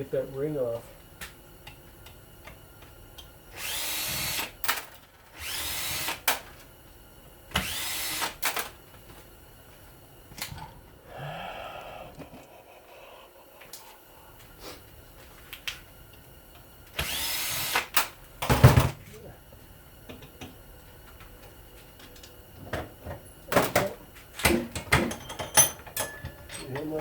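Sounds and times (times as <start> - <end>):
power drill motor whine: 3.5 - 4.6, 5.3 - 6.4, 7.5 - 8.4, 17.0 - 18.1.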